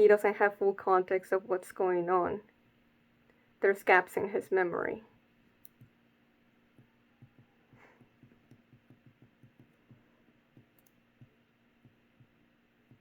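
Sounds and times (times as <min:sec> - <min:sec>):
faint steady hum: 0:00.0 - 0:13.0
soft low taps: 0:06.7 - 0:13.0.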